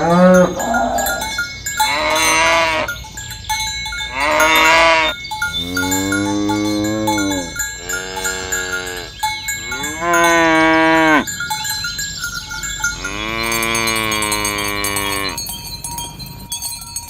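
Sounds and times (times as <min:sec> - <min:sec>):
cattle mooing: 0:00.0 - 0:01.2, 0:04.1 - 0:11.3, 0:13.0 - 0:15.4.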